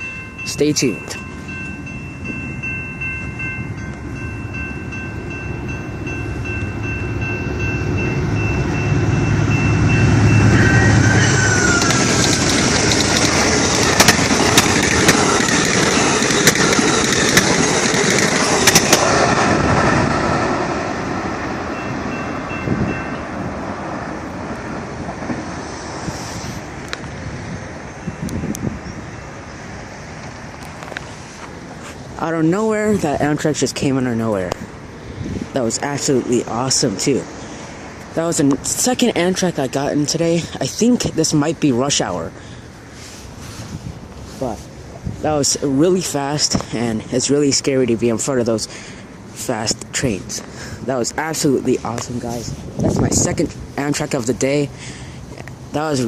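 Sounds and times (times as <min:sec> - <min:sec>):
chiming tones: 0:00.0 - 0:11.1, 0:21.7 - 0:23.4
wheels clicking over rail joints: 0:00.0 - 0:25.5
diesel locomotive rumble: 0:00.0 - 0:56.0
train cars rushing past: 0:00.0 - 0:56.0.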